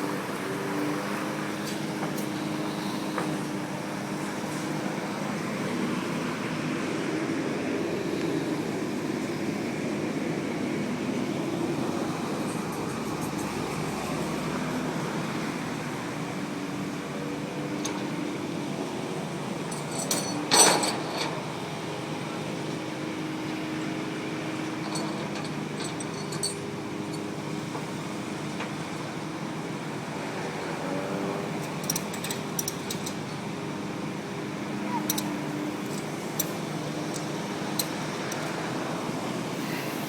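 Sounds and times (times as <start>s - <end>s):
light metallic clinks: 19.7s - 21.4s, 24.6s - 27.3s, 31.6s - 33.4s, 34.8s - 39.0s.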